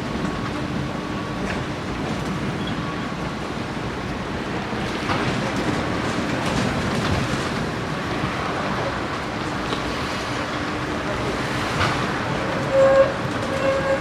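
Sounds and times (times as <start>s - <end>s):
tram rumbling on rails: 0.0s - 14.0s.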